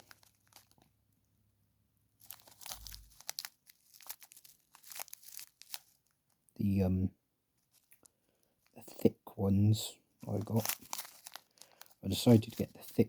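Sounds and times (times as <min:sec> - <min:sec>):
packet crinkling and rustling: 0:00.0 - 0:01.1, 0:02.2 - 0:06.5, 0:07.6 - 0:09.1, 0:10.2 - 0:13.0.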